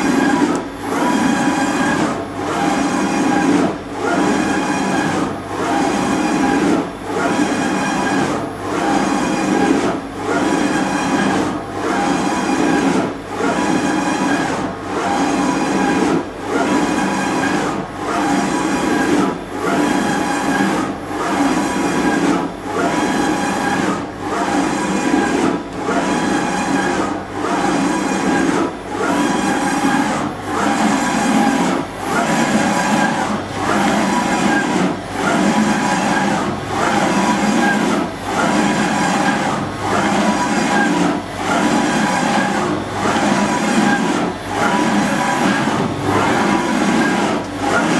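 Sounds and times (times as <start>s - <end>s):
surface grinder running: 30.6s - 47.9s.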